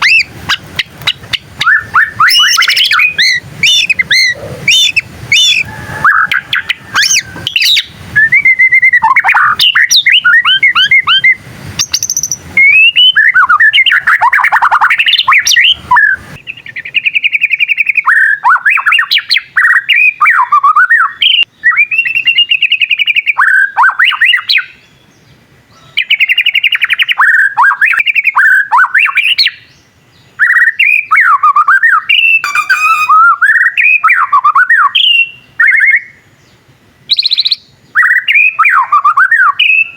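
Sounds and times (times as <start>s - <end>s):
songbird whistling and trilling: 0.0s - 24.7s, 30.4s - 33.4s, 37.1s - 39.9s.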